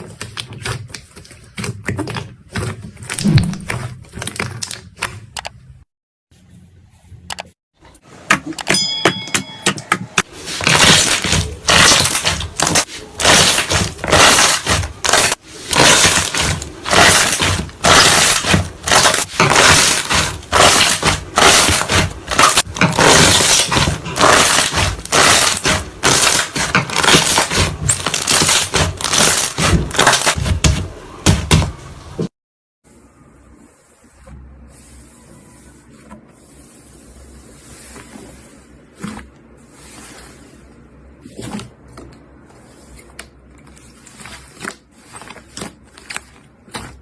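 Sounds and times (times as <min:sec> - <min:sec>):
slime crackling and popping: 0:10.6 - 0:30.4.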